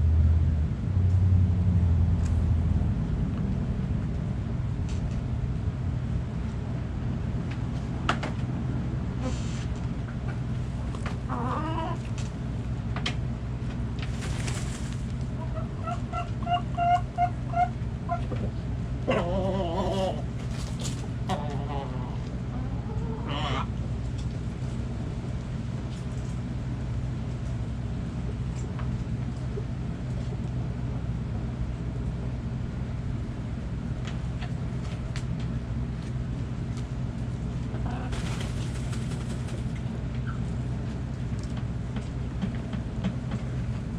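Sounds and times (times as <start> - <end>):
steady low hum: 0.0 - 43.9
hen calling: 15.4 - 18.2.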